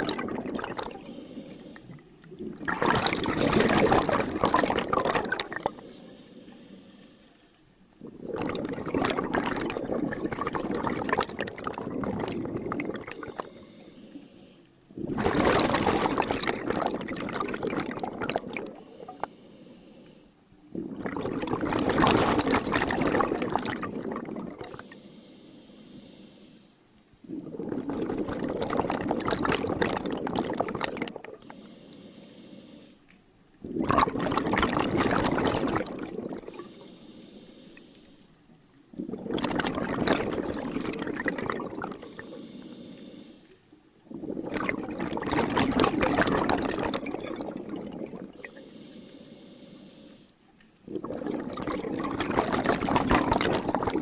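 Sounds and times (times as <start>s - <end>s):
regulator exhale bubbles: 0.0s - 54.0s
diver inhaling: 0.7s - 2.0s, 5.5s - 8.6s, 13.0s - 14.8s, 18.7s - 20.4s, 24.7s - 26.8s, 31.4s - 33.1s, 36.4s - 38.4s, 41.9s - 43.6s, 48.4s - 50.4s.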